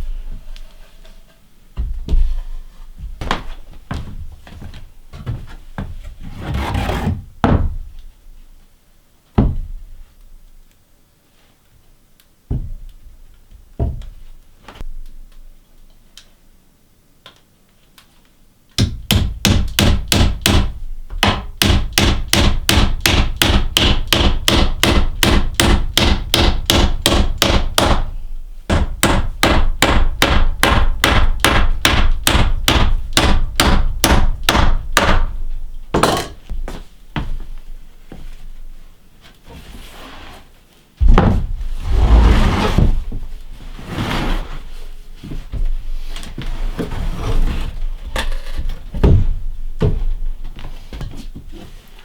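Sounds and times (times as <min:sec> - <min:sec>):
hammer driving nails into wood: 0:18.8 - 0:28.1, 0:28.7 - 0:35.3.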